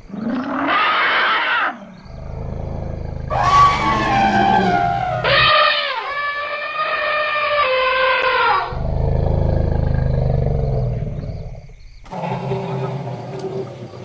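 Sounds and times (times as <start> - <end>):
elephant low rumble: 2.0 - 6.1, 8.7 - 14.0
elephant trumpeting: 3.3 - 6.2.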